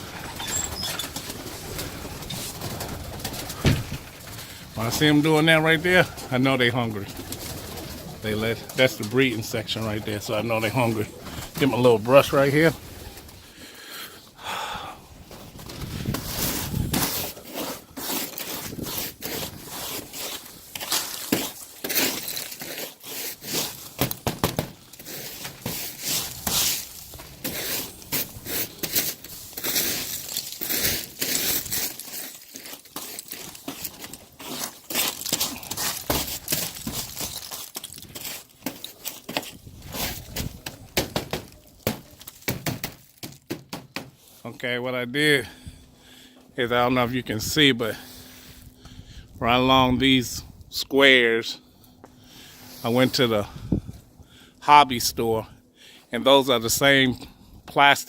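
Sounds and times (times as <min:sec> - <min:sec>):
brush scraping snow and ice: 0:15.8 - 0:24.0, 0:24.9 - 0:40.5.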